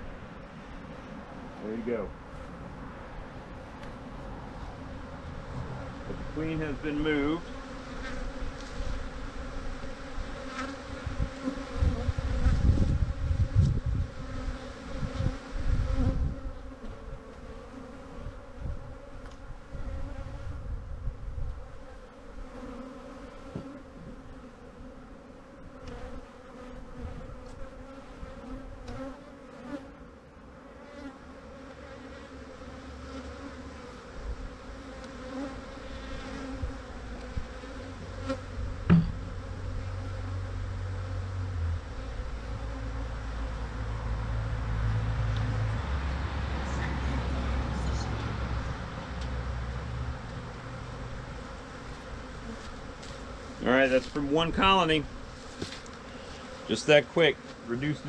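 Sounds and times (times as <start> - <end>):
honeybees buzzing: 0.0 - 58.0
low rumbling and knocks: 38.8 - 39.4.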